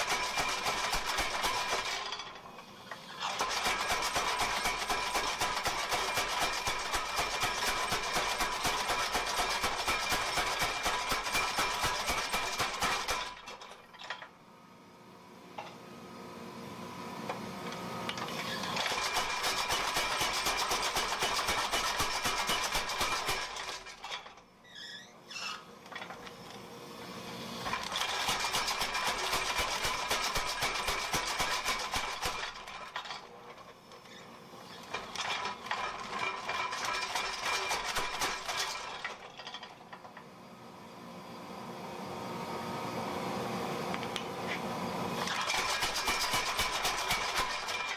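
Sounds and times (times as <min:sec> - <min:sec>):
power hammer pounding steel: 0:00.0 - 0:02.3, 0:03.2 - 0:13.7, 0:18.8 - 0:24.2, 0:27.7 - 0:33.2, 0:34.9 - 0:39.3, 0:45.2 - 0:47.9.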